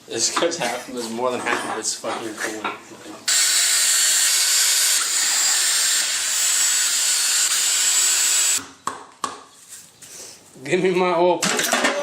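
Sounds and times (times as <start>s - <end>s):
high-speed power tool whining: 3.3s - 8.6s.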